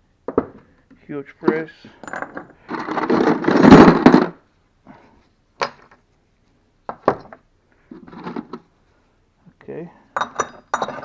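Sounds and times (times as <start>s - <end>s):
metal clinks: 10.2s - 11.0s
steel tools clattering: 10.2s - 11.0s.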